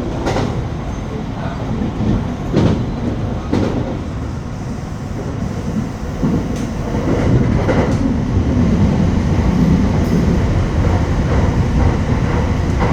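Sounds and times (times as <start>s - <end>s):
low rumble of train wheels: 0.0s - 12.9s
rail joint clicks: 4.6s - 12.9s.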